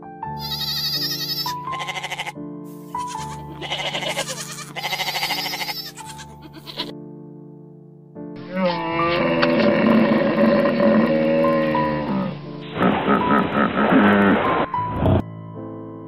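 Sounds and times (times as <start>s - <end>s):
background music: 0.0s - 16.0s
goats bleating: 0.4s - 6.9s.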